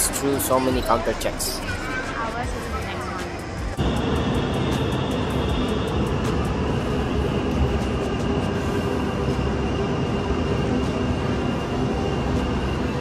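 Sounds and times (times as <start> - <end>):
train rumble and hum: 1.2 - 13.0
high-pitched whine: 3.4 - 13.0.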